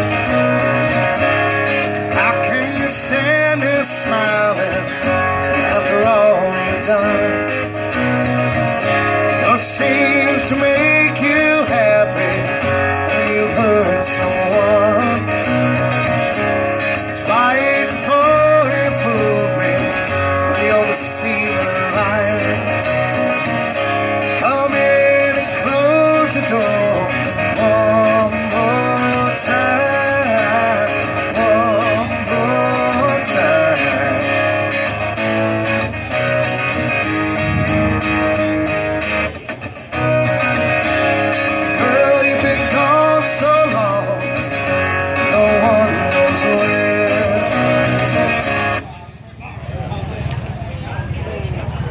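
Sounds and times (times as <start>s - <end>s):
guitar playing: 0.0s - 51.9s
person singing: 1.9s - 7.8s, 9.0s - 15.4s, 17.0s - 23.0s, 24.3s - 34.8s, 41.3s - 48.4s.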